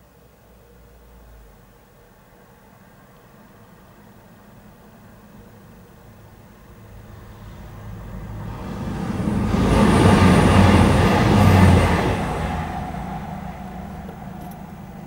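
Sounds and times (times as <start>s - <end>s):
passenger train passing: 5.0s - 15.0s.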